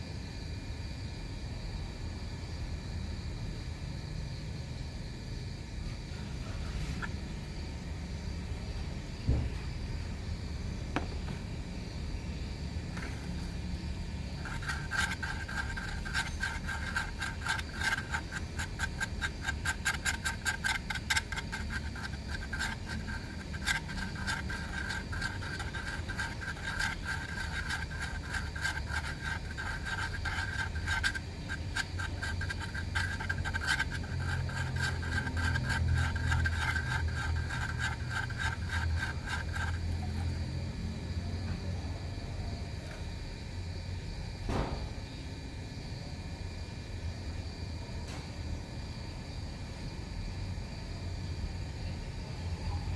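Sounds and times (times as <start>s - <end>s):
hand tool rasping strokes: 14.3s - 40.5s.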